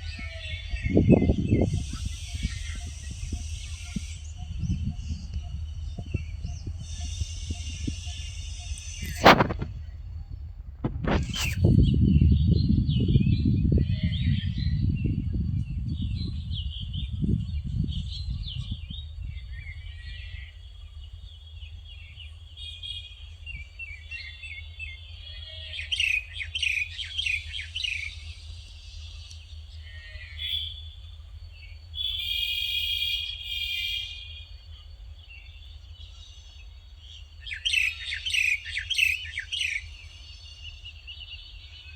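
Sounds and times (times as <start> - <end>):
birds chirping and calling: 0.0 - 9.7, 23.9 - 34.4, 35.3 - 41.9
low rumble: 0.0 - 25.2.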